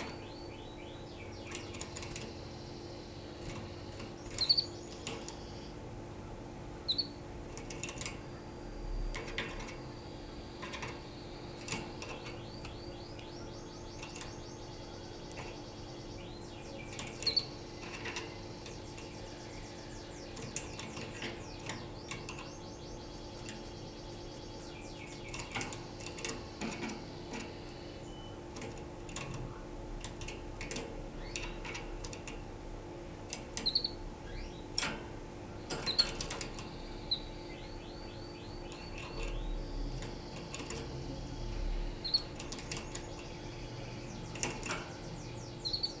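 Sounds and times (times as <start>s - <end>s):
canary singing: 0.0s - 32.5s, 33.3s - 34.9s, 35.5s - 46.0s
steady low hum: 0.0s - 46.0s
sharp clicks and knocks: 44.0s - 45.4s.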